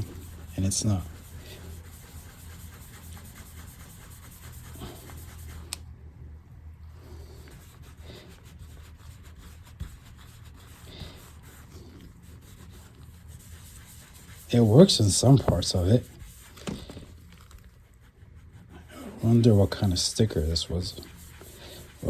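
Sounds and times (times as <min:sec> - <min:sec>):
scratching and rubbing at keys: 0:00.0 - 0:05.8, 0:07.0 - 0:22.0
low steady hum: 0:00.0 - 0:22.0.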